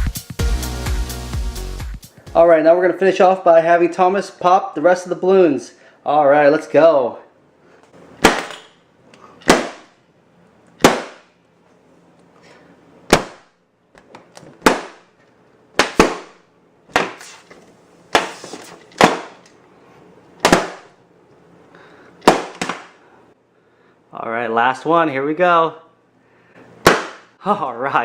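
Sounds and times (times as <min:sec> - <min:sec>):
balloons popping: 0:08.2 - 0:08.6, 0:09.4 - 0:10.0, 0:10.8 - 0:11.3, 0:13.1 - 0:13.5, 0:14.6 - 0:15.1, 0:15.8 - 0:17.4, 0:20.4 - 0:20.9, 0:22.2 - 0:23.0, 0:26.8 - 0:27.3.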